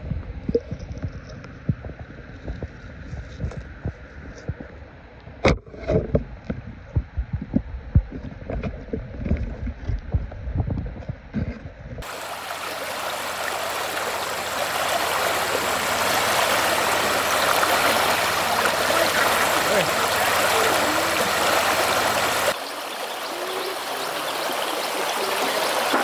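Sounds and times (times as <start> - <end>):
stream flowing over rocks: 12.0 - 26.0.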